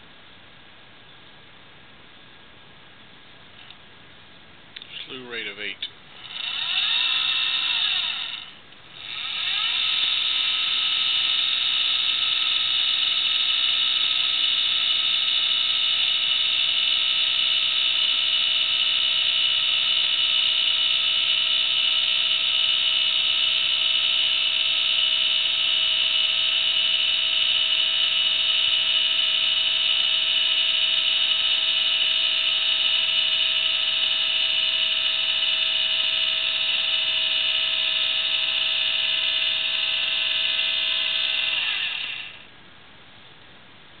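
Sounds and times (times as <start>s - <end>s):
motor and gear whine: 6.1s - 42.5s.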